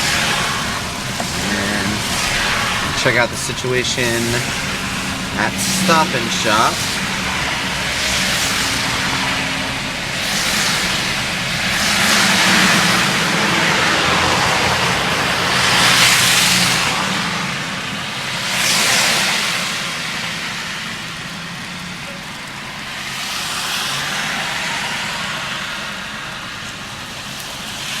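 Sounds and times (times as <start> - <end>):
car engine hum: 0.0 - 27.5
tyre and road hiss: 0.0 - 28.0.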